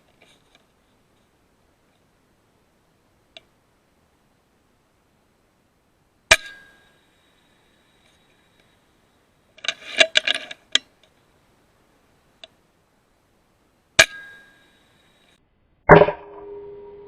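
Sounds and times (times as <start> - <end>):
metallic ringing tone: 6.3 - 8.0, 14.0 - 17.0.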